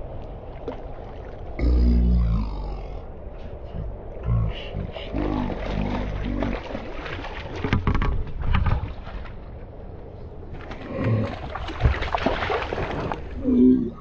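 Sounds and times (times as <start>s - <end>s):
splashing in river water: 5.1s - 9.7s, 10.5s - 13.6s.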